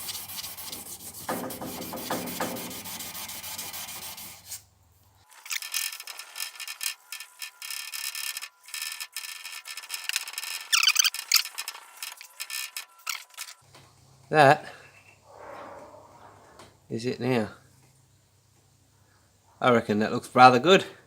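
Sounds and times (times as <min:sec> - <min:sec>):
sandpaper rubbing on metal: 0:00.0 - 0:04.7.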